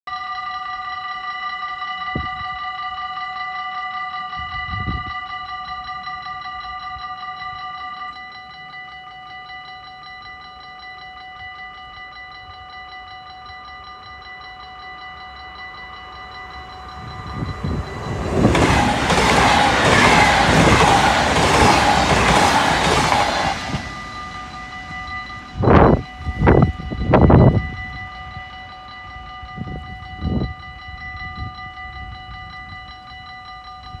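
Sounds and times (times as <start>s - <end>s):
level crossing bells ringing: 0.1s - 34.0s
train rushing over rails: 15.4s - 33.2s.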